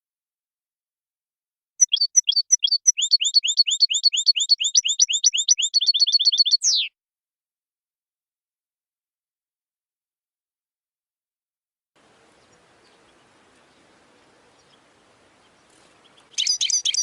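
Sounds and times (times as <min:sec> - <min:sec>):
goldfinch singing: 0:01.8 - 0:06.9, 0:12.0 - 0:17.0.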